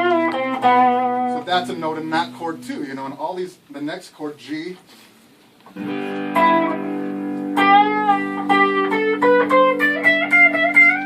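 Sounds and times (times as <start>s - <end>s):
guitar chord ringing: 0.0s - 2.9s, 5.8s - 11.0s
guitar lead line: 0.0s - 3.2s, 5.7s - 11.0s.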